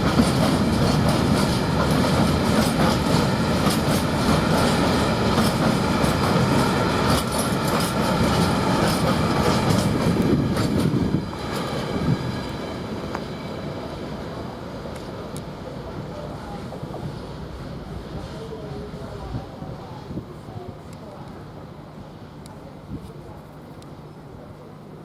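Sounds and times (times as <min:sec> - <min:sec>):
train wheels clattering over rail joints: 0:00.0 - 0:13.3
diesel locomotive: 0:00.0 - 0:25.0.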